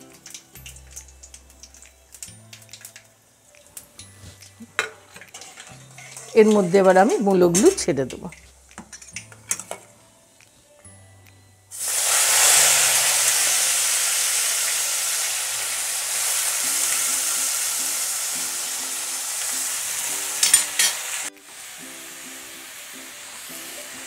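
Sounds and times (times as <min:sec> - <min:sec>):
radish sizzling in hot oil: 0:00.0 - 0:10.0, 0:11.7 - 0:24.0
spatula clattering against pan: 0:04.7 - 0:09.9, 0:20.4 - 0:21.0.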